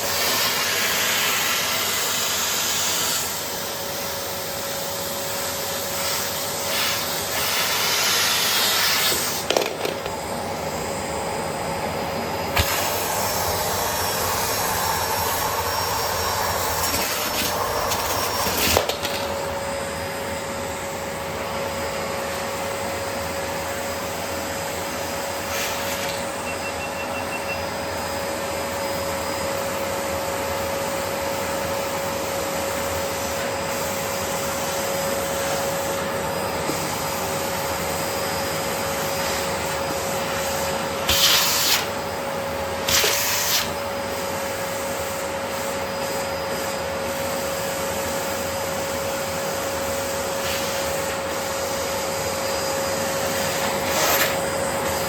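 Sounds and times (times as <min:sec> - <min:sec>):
vacuum cleaner running: 0:00.0 - 0:55.0
steady whine: 0:09.7 - 0:21.5.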